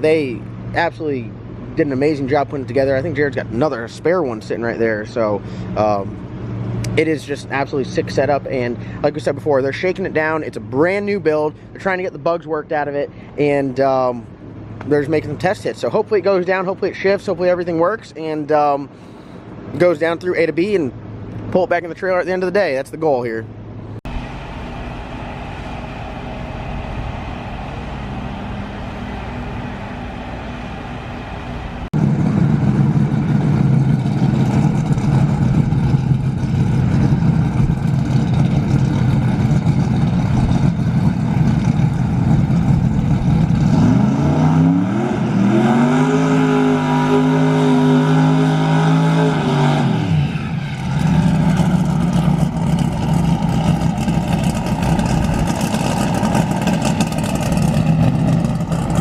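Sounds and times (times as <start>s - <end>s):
drag race car engine revving: 24.1s - 59.0s.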